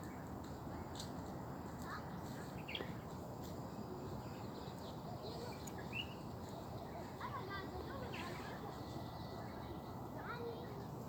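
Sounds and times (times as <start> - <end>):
low background noise: 0.0 - 11.0.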